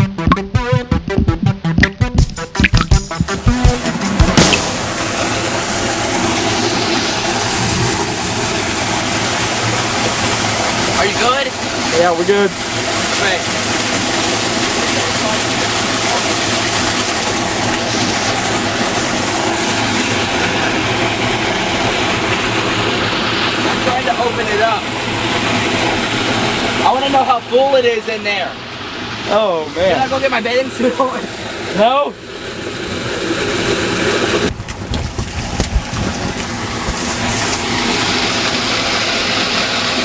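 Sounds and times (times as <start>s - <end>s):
knocks and clicks: 0.0s - 4.9s
water rushing into storm sewer: 4.4s - 40.0s.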